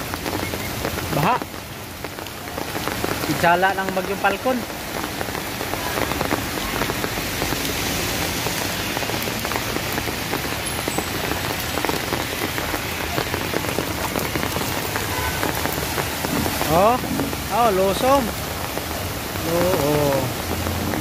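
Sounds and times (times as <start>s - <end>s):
heavy rain falling: 0.0s - 21.0s
single raindrops hitting: 0.2s - 21.0s.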